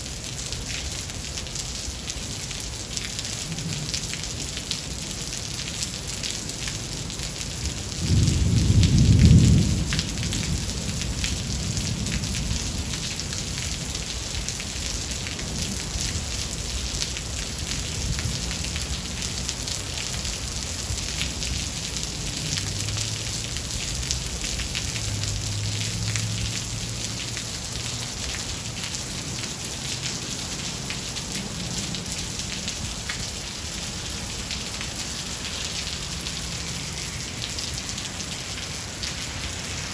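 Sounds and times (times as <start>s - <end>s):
heavy rain falling: 0.0s - 39.9s
thunder: 8.0s - 12.6s.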